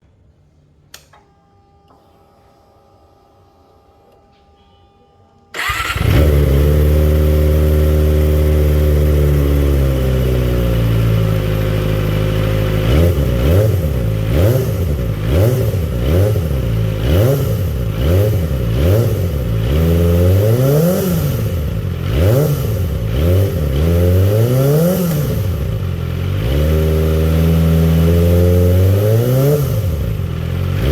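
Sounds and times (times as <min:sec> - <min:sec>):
motorcycle engine idling and revving: 0:05.6 - 0:30.9.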